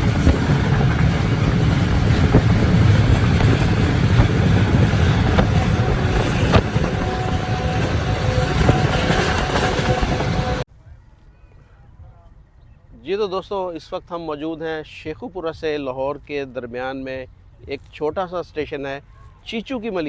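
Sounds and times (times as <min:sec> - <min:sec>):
wheels knocking over rail joints: 0:00.0 - 0:10.6
train rumbling on track: 0:00.0 - 0:10.7.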